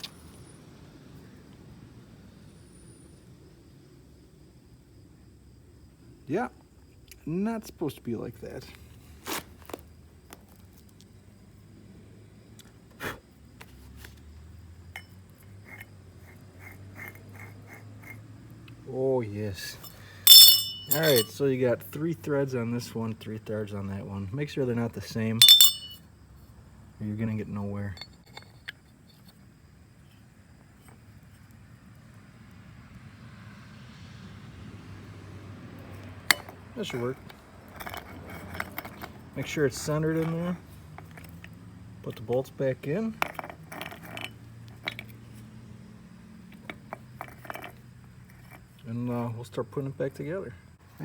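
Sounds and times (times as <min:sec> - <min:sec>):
light metal clinks: 0:14.9 - 0:15.9, 0:19.7 - 0:21.5, 0:25.4 - 0:26.0, 0:27.8 - 0:29.4
low steady hum: 0:19.8 - 0:21.4, 0:25.4 - 0:26.0.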